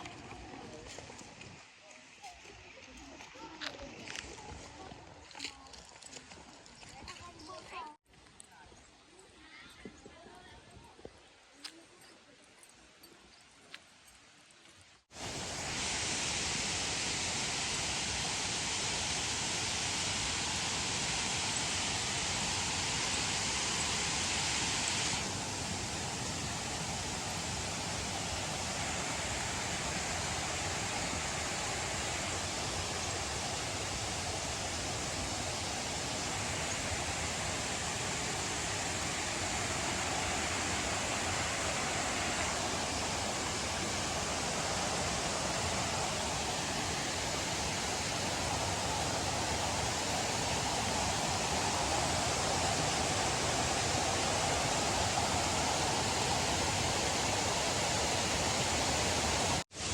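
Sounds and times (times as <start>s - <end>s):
waterfall rushing: 15.2s - 59.9s.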